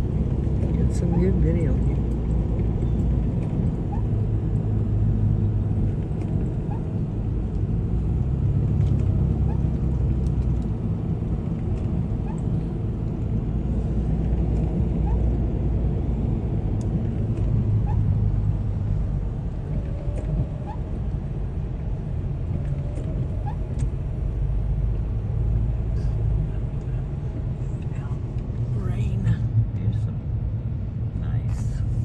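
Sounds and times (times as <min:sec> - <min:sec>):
car engine and road noise: 0:00.0 - 0:32.0.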